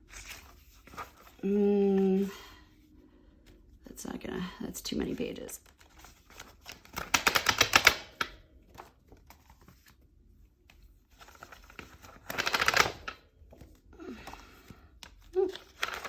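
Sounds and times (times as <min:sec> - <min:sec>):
pages clicking on binding discs: 0:05.6 - 0:10.0, 0:10.6 - 0:16.0.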